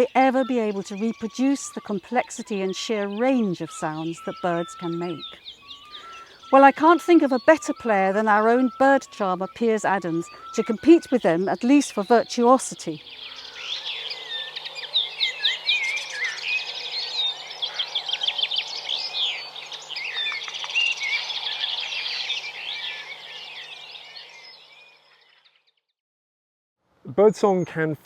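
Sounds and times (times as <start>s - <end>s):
songbirds singing: 0.0s - 25.8s.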